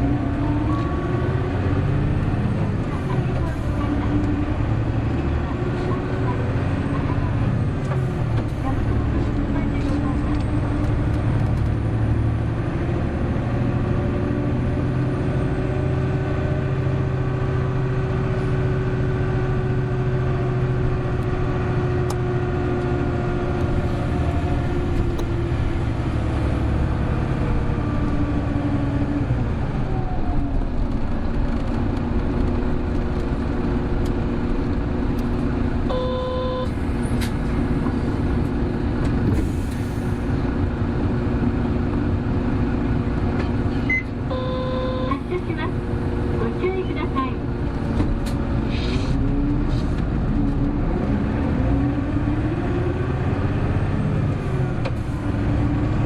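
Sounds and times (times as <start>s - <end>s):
diesel bus engine running: 0.0s - 56.0s
short electronic beep: 35.9s - 36.7s.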